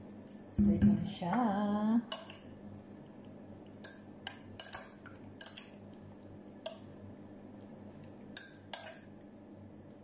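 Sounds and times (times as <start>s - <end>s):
metal spoon clinking glass bowl: 8.4s - 9.1s.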